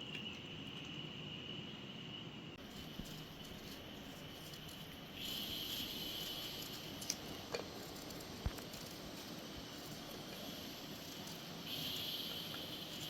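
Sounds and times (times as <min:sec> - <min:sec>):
high-pitched insect drone: 0:02.6 - 0:09.3, 0:10.4 - 0:13.0.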